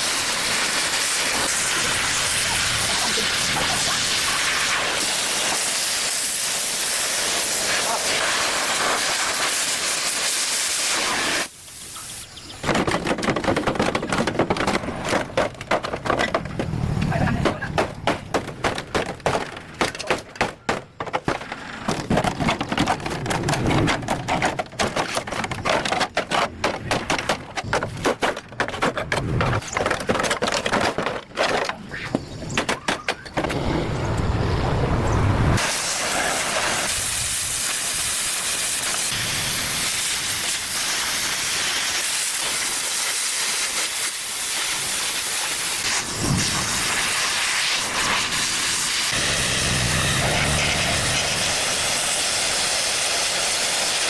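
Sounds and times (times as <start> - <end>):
loud steady hiss: 0.0 - 12.6, 35.5 - 54.0
crackling and knocking: 12.5 - 34.3.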